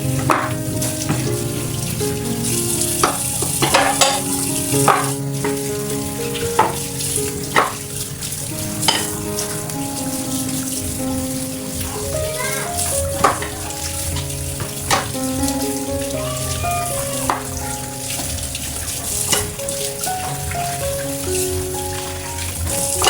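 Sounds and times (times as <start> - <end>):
food sizzling in a frying pan: 0.0 - 23.0
soft background music: 0.0 - 23.0
utensil knocking against pan: 3.0 - 5.6, 7.5 - 7.8, 8.8 - 9.2, 13.2 - 13.6.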